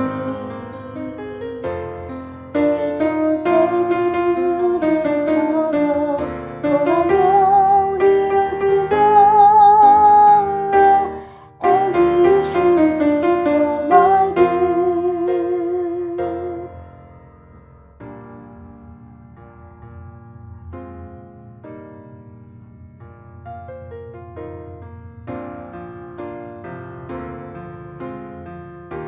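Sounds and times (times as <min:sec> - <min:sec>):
woman singing a hymn: 0:00.0 - 0:16.8
piano accompaniment: 0:00.0 - 0:29.0.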